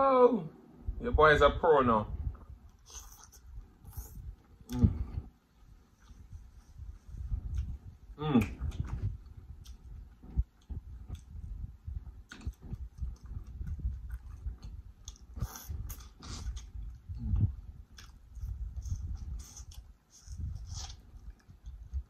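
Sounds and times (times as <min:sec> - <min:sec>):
wet mouth smacks and clicks: 0:07.5 - 0:07.8
biting and chewing corn: 0:08.5 - 0:22.0.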